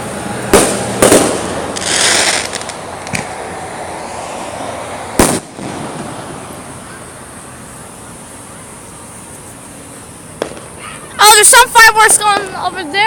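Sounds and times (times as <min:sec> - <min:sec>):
background noise: 0:00.0 - 0:13.0
firework bang: 0:00.5 - 0:03.4, 0:05.1 - 0:07.1, 0:10.4 - 0:11.6.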